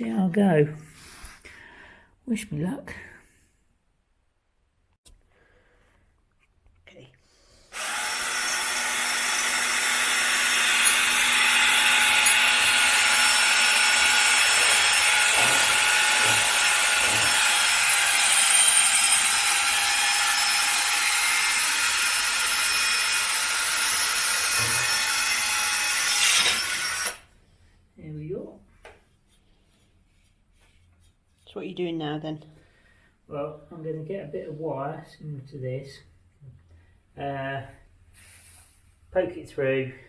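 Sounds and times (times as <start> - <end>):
power drill boring into metal: 7.7 - 27.2.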